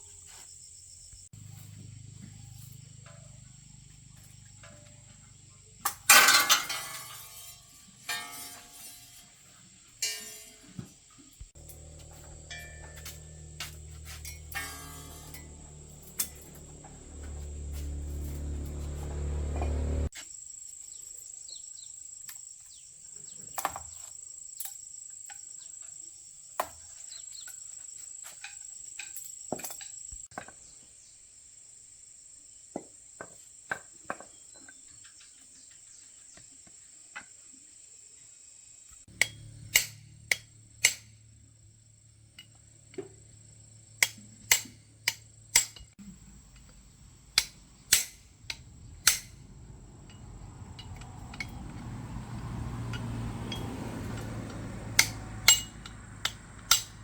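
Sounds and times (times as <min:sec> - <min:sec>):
hand tools clicking on metal: 0:10.0 - 0:10.8, 0:11.6 - 0:19.2, 0:39.1 - 0:41.1, 0:44.0 - 0:45.9, 0:46.6 - 0:57.0
low hum: 0:11.6 - 0:20.1, 0:46.0 - 0:57.0.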